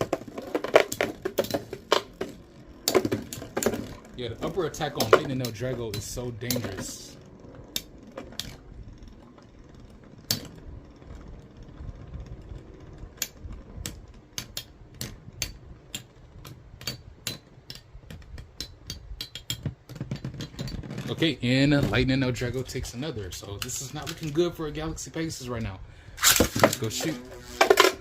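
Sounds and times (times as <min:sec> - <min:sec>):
spinning tops whirring: 0:00.0 - 0:19.8, 0:26.1 - 0:28.0
spinning tops clacking together: 0:26.2 - 0:28.0.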